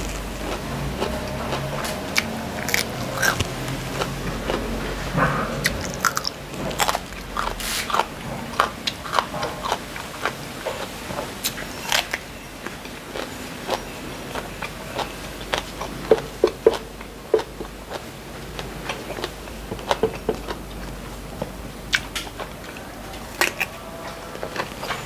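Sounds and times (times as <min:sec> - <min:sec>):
crisp vegetable bite: 0:00.0 - 0:04.7.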